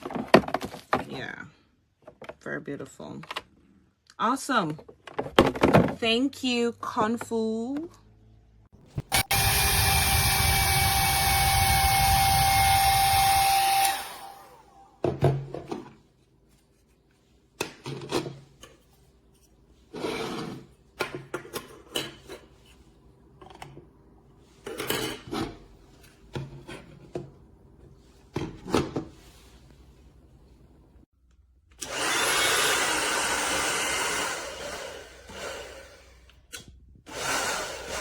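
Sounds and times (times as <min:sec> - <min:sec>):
hair dryer blowing: 0:09.1 - 0:15.0, 0:31.8 - 0:36.3, 0:37.1 - 0:38.0
rubbing and handling noises: 0:15.7 - 0:17.6.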